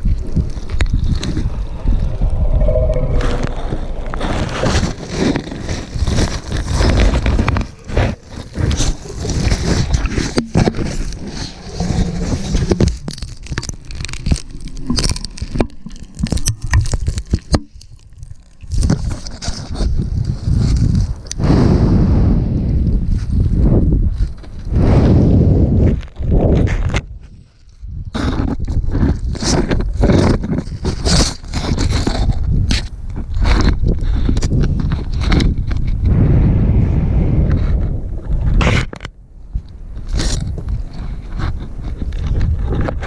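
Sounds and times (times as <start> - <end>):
heavy low rumbling: 0.0 - 8.6, 36.0 - 38.6
scraping and rubbing on camera: 0.0 - 21.3, 25.8 - 36.2, 37.5 - 43.0.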